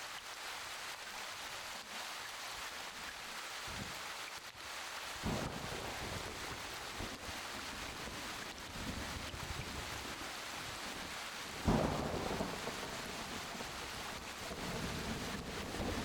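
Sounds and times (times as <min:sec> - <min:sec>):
steady rain: 0:00.0 - 0:16.0
thunder clap rumbling: 0:05.2 - 0:10.1, 0:11.5 - 0:16.0.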